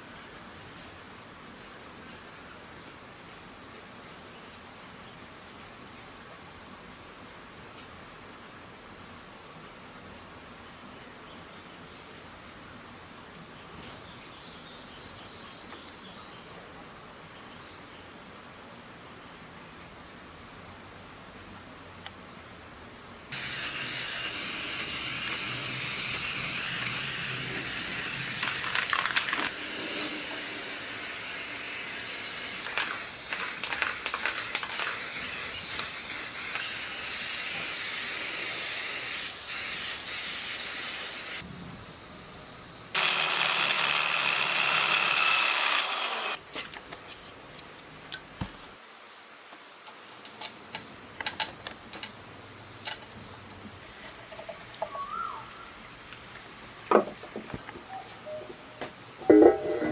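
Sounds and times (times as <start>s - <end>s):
compressed air hissing from nozzle: 23.3s - 41.4s.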